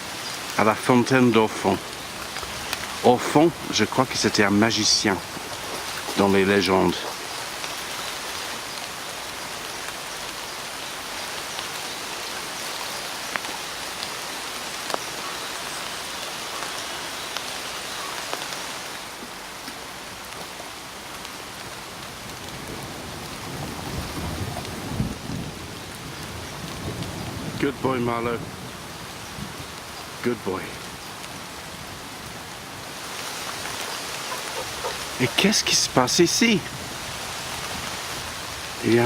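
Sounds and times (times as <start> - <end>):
heavy rain falling: 0.0 - 39.0.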